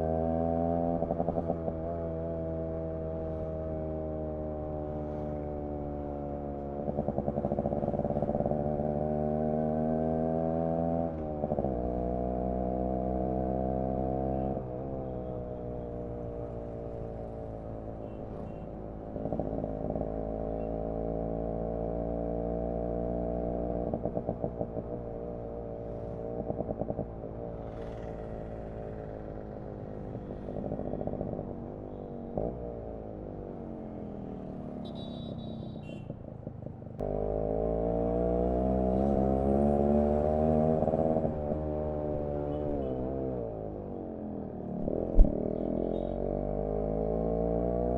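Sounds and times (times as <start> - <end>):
two-stroke motorcycle engine revving: 37.0 - 43.5.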